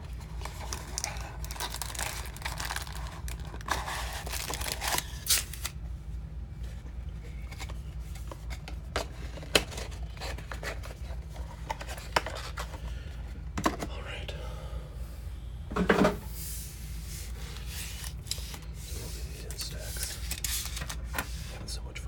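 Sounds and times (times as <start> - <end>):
packaging tearing and crinkling: 0.3 - 5.8, 19.5 - 21.1.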